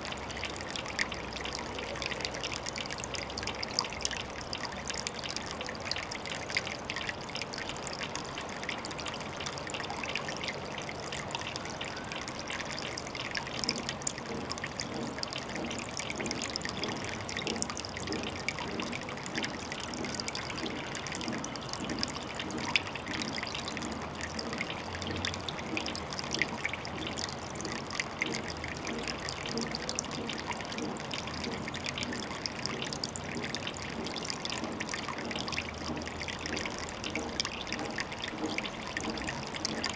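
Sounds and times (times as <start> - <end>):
small drips and splashes: 0.0 - 39.9
water trickling at a pond: 0.0 - 39.9.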